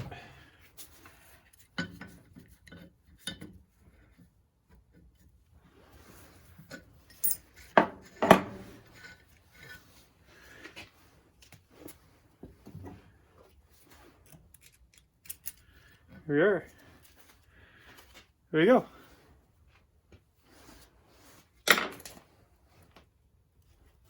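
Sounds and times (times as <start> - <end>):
metal tools clinking on workbench: 7.0 - 9.8.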